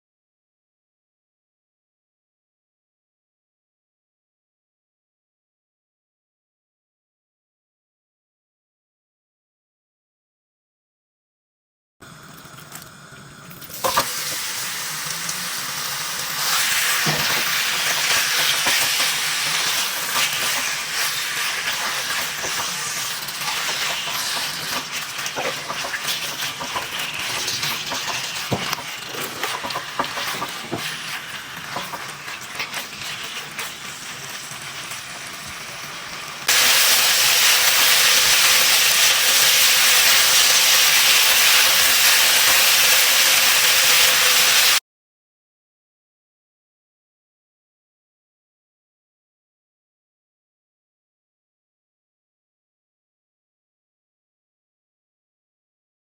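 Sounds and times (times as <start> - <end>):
food sizzling in a pan: 12.4 - 44.8.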